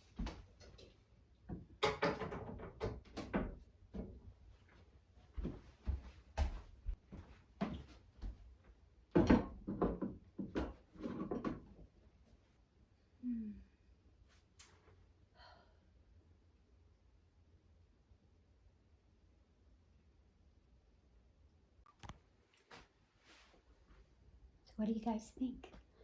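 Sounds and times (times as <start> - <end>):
knocks clicks and clatter: 0.3 - 4.2.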